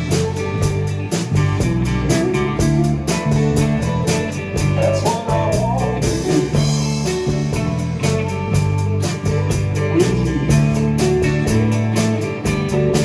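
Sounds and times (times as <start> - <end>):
bass guitar: 0.0 - 13.0
guitar: 0.0 - 13.0
steady drum beat: 0.0 - 13.0
lead line bending in pitch: 4.7 - 6.6.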